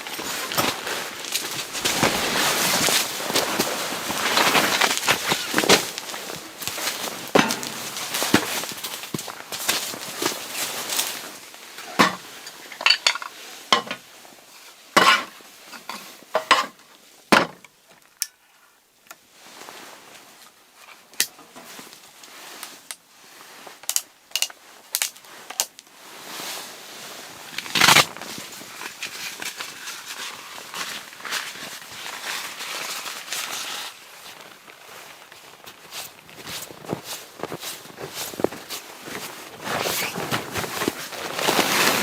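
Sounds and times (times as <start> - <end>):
rustling: 0.0 - 14.8, 19.4 - 42.0
objects knocking and clinking: 7.3 - 8.6.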